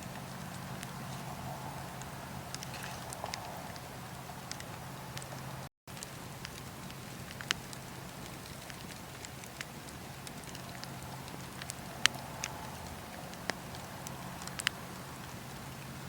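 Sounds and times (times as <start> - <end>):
campfire hissing and crackling: 0.0 - 16.0
fire popping: 0.0 - 16.0.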